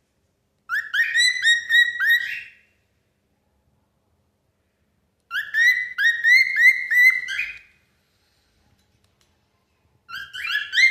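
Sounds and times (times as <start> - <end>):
cockatiel whistling notes: 0.7 - 2.6, 5.3 - 7.7, 10.1 - 10.9.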